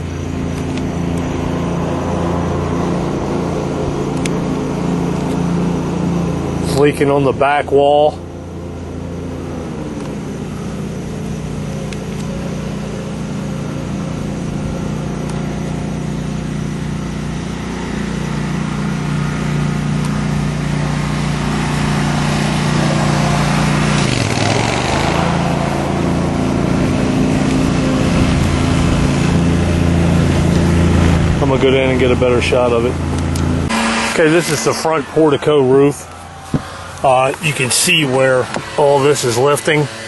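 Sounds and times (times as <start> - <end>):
small motor humming: 7.9 - 40.0
rush of noise: 20.5 - 40.0.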